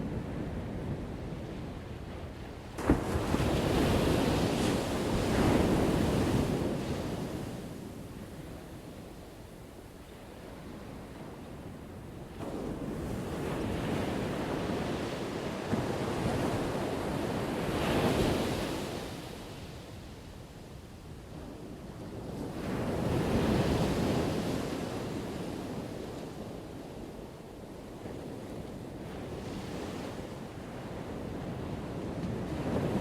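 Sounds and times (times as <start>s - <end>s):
ocean waves crashing on shore: 0.0s - 8.7s.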